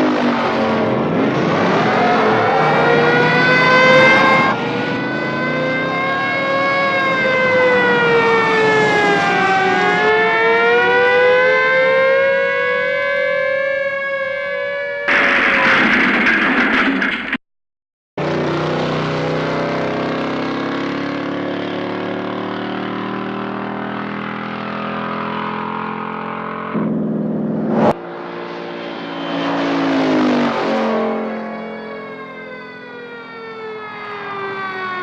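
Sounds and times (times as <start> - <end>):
police sirens wailing: 0.0 - 15.8, 18.3 - 35.0
loud rushing noise: 26.8 - 31.5.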